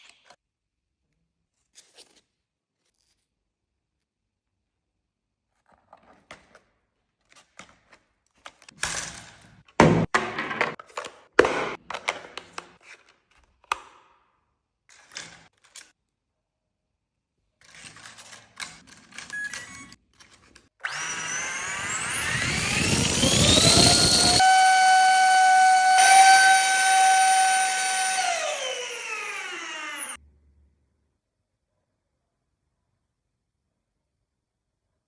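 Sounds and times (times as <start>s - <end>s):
small electric motor whine: 20.8s - 30.2s.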